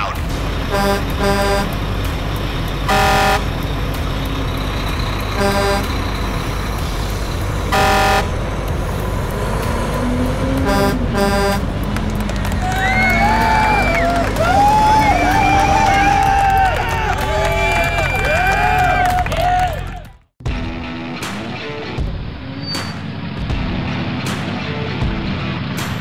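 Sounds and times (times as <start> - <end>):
truck engine rumble: 0.0 - 26.0
truck horn honking: 0.6 - 2.0, 2.8 - 6.7, 7.5 - 8.6, 10.4 - 12.0.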